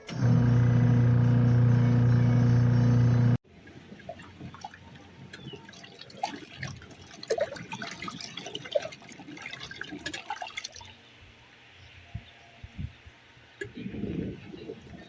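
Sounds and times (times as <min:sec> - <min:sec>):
water dripping and splashing: 0:03.6 - 0:11.0.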